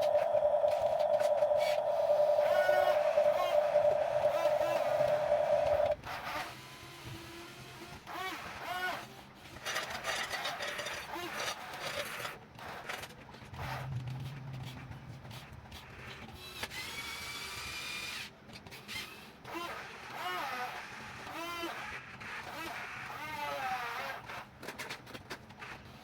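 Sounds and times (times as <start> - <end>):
faint rising-and-falling calls: 0.0 - 6.0
small electric motors whining: 0.0 - 6.0.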